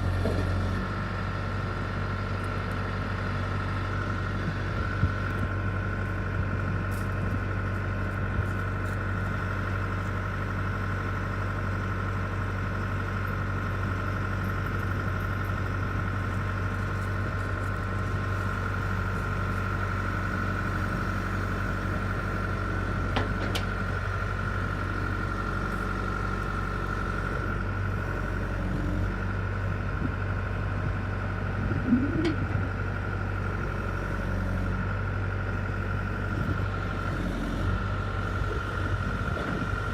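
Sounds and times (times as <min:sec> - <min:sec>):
backhoe engine droning: 0:00.0 - 0:39.9.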